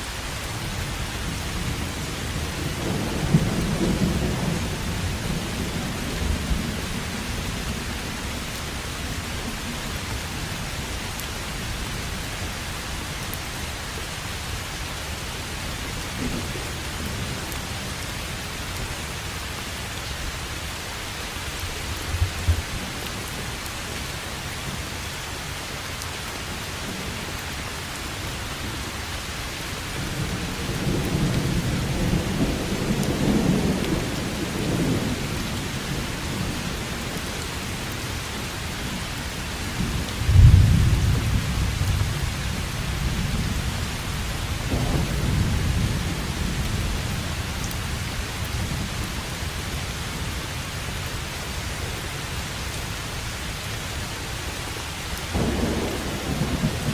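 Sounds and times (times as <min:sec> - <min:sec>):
heavy rain: 0:00.0 - 0:56.9
thunder rumbling: 0:01.6 - 0:08.1, 0:39.8 - 0:48.0, 0:55.3 - 0:56.9
thunderclap: 0:44.6 - 0:46.6, 0:55.3 - 0:56.9.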